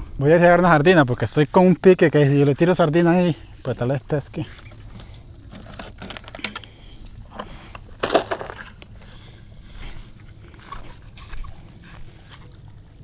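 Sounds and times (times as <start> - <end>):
knocks and handling noises: 7.4 - 9.1.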